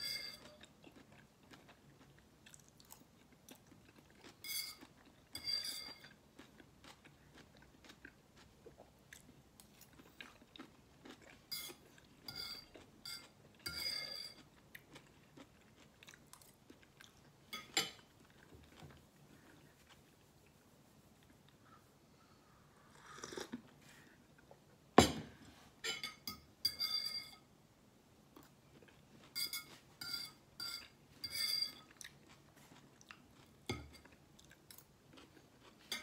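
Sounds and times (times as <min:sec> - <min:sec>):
fork clinking on a plate: 0:00.0 - 0:00.6, 0:04.4 - 0:06.2, 0:11.5 - 0:14.4, 0:25.8 - 0:27.5, 0:29.3 - 0:32.0.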